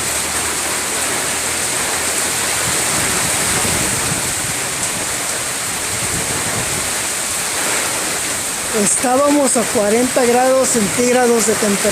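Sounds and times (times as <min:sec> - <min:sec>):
heavy rain pouring: 0:00.0 - 0:11.9.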